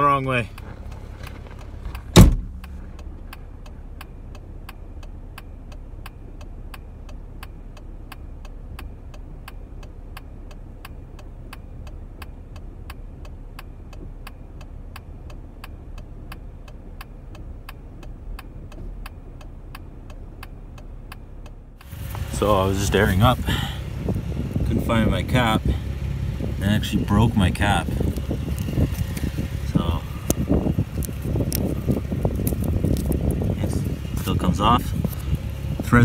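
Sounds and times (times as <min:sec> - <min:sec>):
low hum: 0:00.0 - 0:36.0
steady even ticking: 0:00.0 - 0:36.0.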